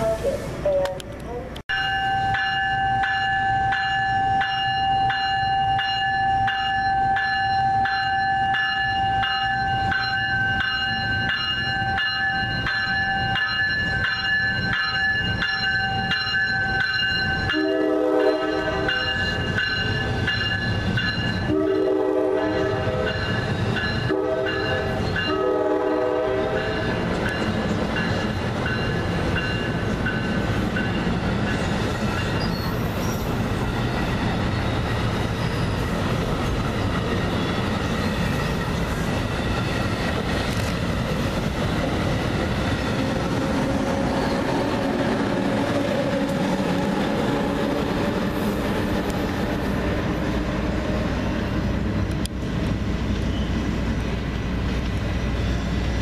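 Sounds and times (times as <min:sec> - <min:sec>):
train horn blasts: 0:00.0 - 0:01.0, 0:17.5 - 0:19.2, 0:21.4 - 0:23.3, 0:24.0 - 0:26.9
train wheels rumbling on rails: 0:00.0 - 0:56.0.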